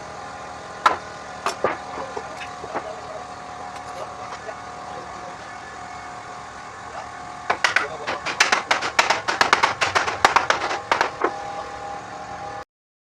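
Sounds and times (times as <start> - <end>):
steady background hum: 0.0 - 12.6
rapid sharp knocks: 7.5 - 11.4.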